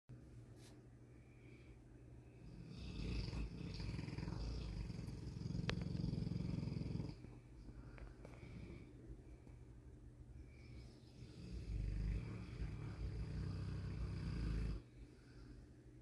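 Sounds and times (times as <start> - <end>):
dog snoring: 2.4 - 7.3, 10.6 - 14.9.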